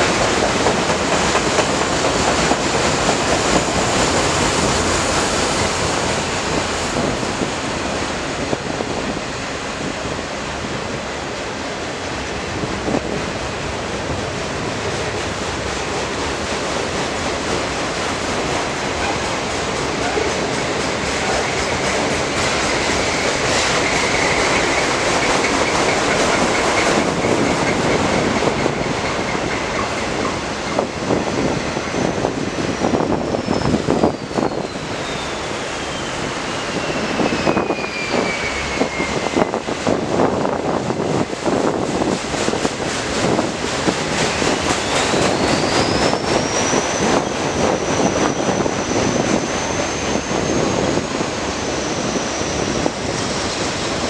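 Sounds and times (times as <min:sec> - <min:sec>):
train rumbling past: 0:00.0 - 0:54.0
high-pitched wheel squeal: 0:31.4 - 0:39.6, 0:44.7 - 0:53.1.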